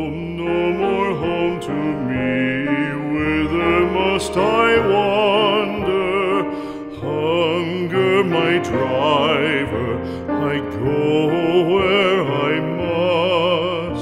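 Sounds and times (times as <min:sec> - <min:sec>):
piano accompaniment: 0:00.0 - 0:14.0
trained voice singing with vibrato: 0:00.0 - 0:14.0.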